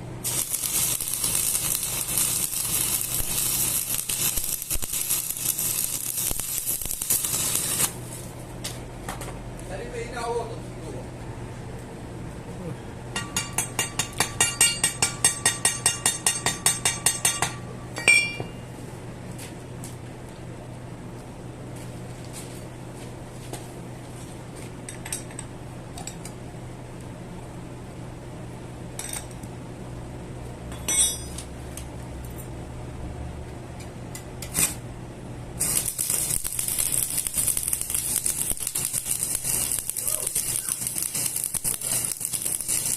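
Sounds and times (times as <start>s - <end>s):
steady low hum: 0.0s - 42.9s
loud rough hiss: 0.2s - 8.3s, 35.6s - 42.9s
metal struck ringing clinks: 13.2s - 18.7s, 30.7s - 31.4s
metal clinking: 30.7s - 31.4s.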